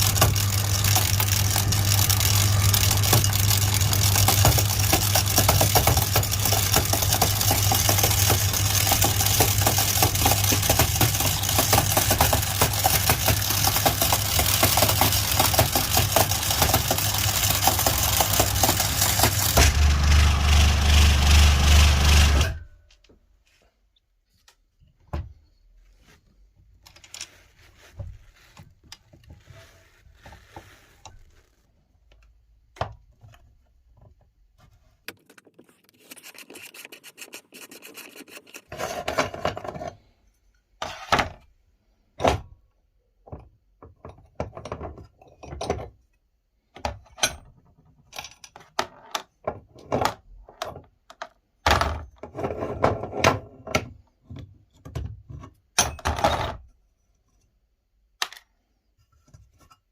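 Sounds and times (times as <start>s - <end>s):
glass marbles rattling in grinder: 0.0s - 22.3s.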